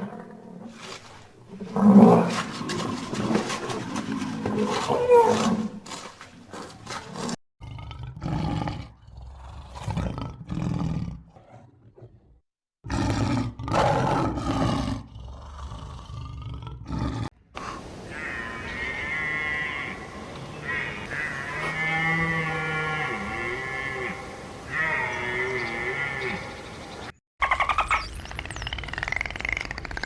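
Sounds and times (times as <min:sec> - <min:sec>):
large animal roaring: 0:12.8 - 0:26.5.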